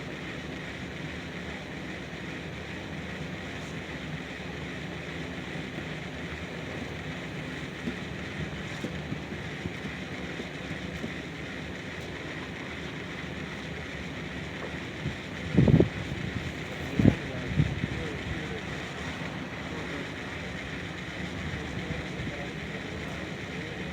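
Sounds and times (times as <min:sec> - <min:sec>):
steady rushing noise: 0:00.0 - 0:23.9.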